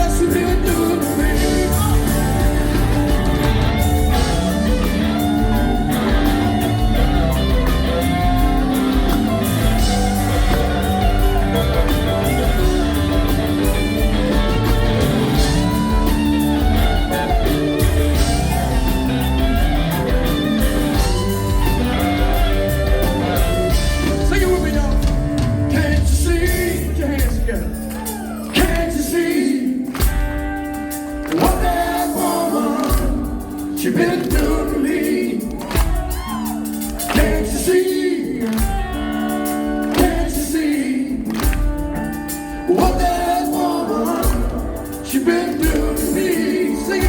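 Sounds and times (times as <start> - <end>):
bass guitar: 0.0 - 29.1, 30.0 - 47.0
drums: 0.0 - 47.0
electric guitar: 0.0 - 47.0.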